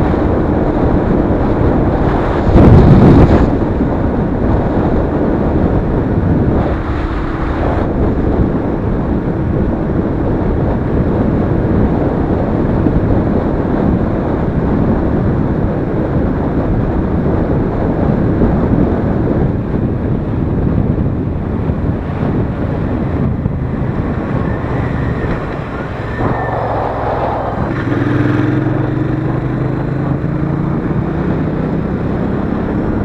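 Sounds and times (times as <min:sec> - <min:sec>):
wind buffeting on microphone: 0:00.0 - 0:33.0
motorcycle engine running: 0:00.1 - 0:11.8, 0:21.1 - 0:33.0.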